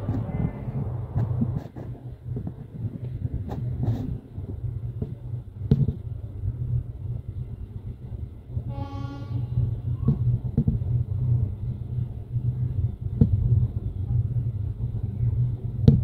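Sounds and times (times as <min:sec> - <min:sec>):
train rumble: 0:00.0 - 0:16.0
train horn blast: 0:08.6 - 0:09.8.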